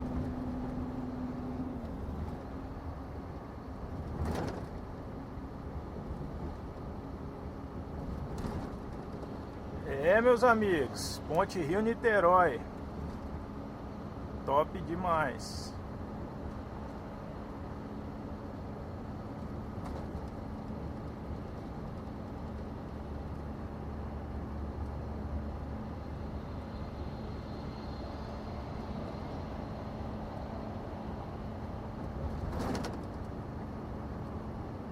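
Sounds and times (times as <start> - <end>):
truck diesel engine running: 0.0 - 8.0
truck engine and road noise: 0.0 - 34.9.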